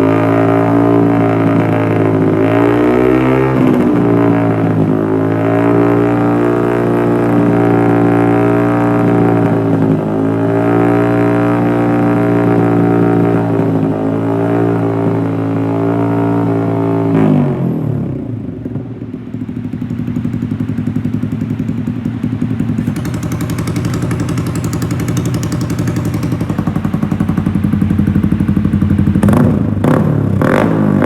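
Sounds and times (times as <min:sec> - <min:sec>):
motorcycle engine droning: 0:17.5 - 0:31.0.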